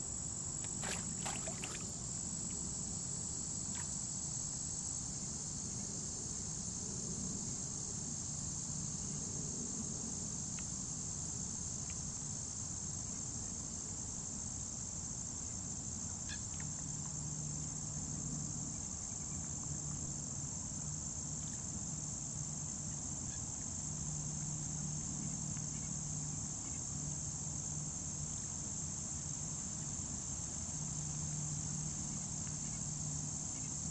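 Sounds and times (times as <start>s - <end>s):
faint low hum: 0.0s - 12.0s
crickets chirping: 0.0s - 33.9s.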